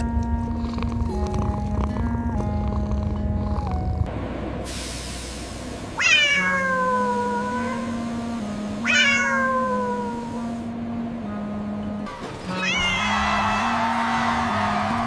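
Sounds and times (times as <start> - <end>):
cat meowing: 6.0 - 8.0, 8.8 - 10.4, 12.5 - 13.6.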